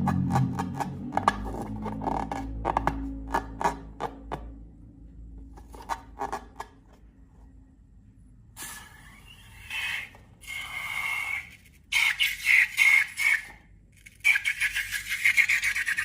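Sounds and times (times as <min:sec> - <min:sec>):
slime rustling and scraping: 0:05.4 - 0:07.2.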